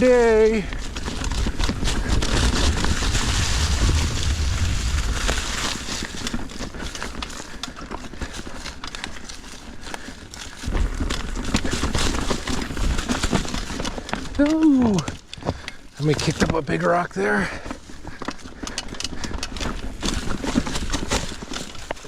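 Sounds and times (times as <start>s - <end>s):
bike rattling: 0.0s - 22.0s
tyres crunching over rocks: 0.0s - 22.0s
wind rumble on microphone: 0.6s - 7.1s.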